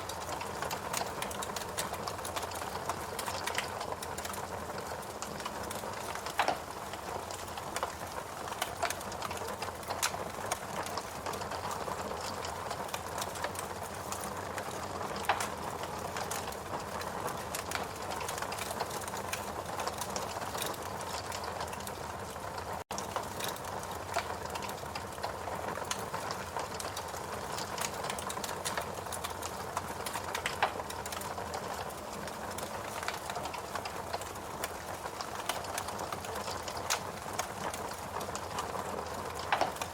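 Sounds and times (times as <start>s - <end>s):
fireplace crackling: 0.0s - 39.9s.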